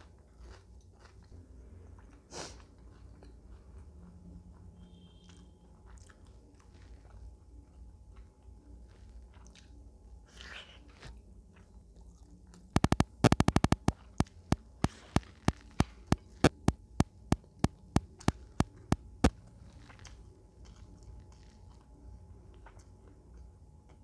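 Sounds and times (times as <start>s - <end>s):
faint chewing: 0.1s - 3.9s, 5.2s - 7.3s, 22.5s - 24.0s
sharp close clicks: 12.8s - 15.0s, 16.0s - 19.0s.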